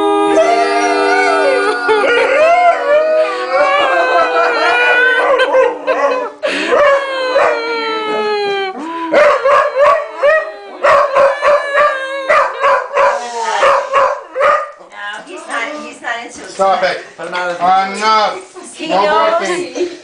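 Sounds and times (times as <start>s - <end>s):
dog howling: 0.0s - 13.2s.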